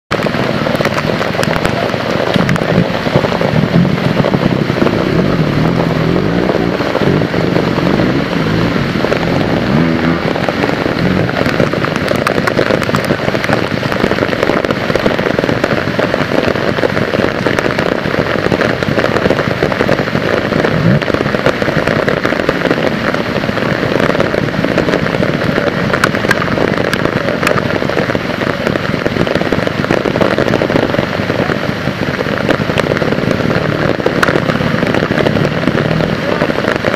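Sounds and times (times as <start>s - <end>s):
heavy rain: 0.0s - 36.9s
motorcycle engine revving: 0.2s - 28.2s, 32.6s - 36.9s.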